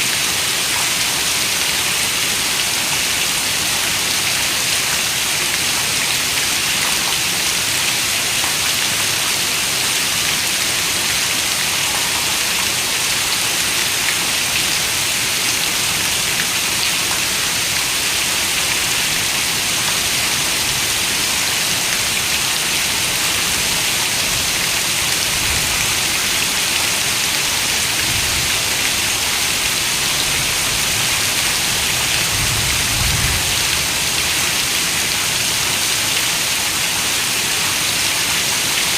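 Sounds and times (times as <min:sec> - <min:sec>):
steady rain hissing: 0:00.0 - 0:38.9.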